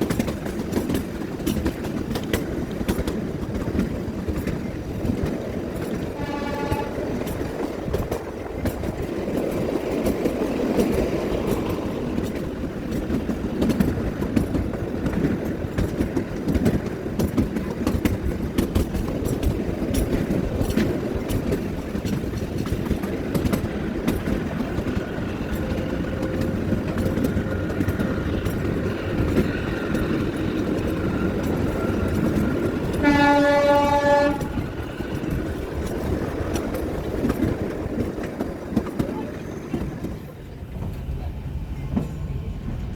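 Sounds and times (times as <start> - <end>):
train wheels clicking over rail joints: 0.0 - 42.9
train horn: 6.1 - 7.4, 25.5 - 28.1, 32.9 - 34.8.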